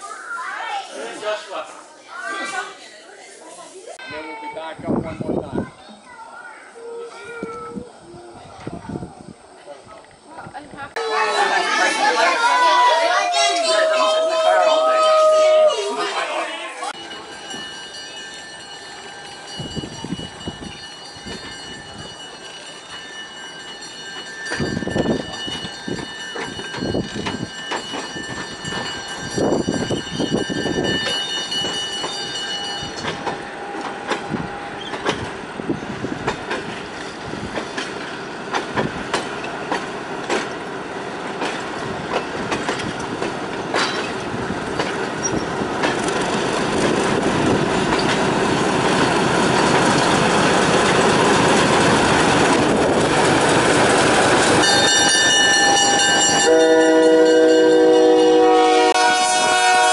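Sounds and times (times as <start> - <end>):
diesel locomotive engine: 4.8 - 59.9
wheels clicking over rail joints: 16.9 - 56.6
high wheel squeal: 45.2 - 45.5.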